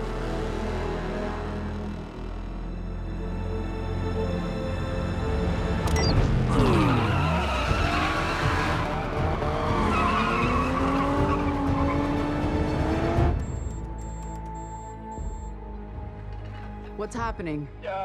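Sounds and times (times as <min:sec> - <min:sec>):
race car engines revving: 0:06.3 - 0:13.5.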